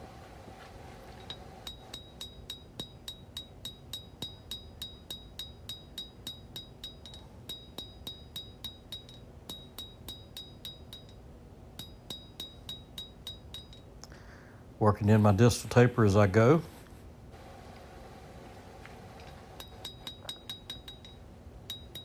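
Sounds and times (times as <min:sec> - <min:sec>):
hammer striking steel on anvil: 0:11.8 - 0:13.8.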